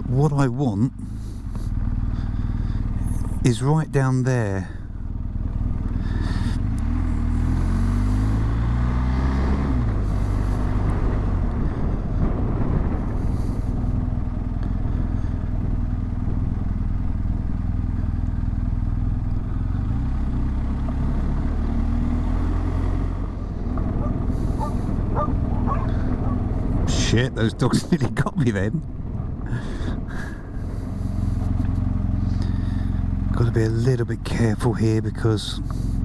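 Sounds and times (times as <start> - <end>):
motorcycle engine accelerating: 0.9 - 36.0
wind noise: 10.5 - 16.5, 23.6 - 28.4.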